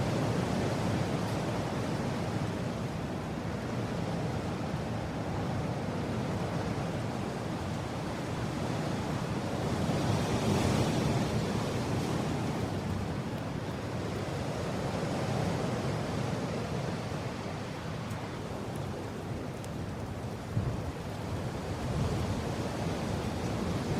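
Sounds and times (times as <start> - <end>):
rushing wind: 0.0 - 23.9.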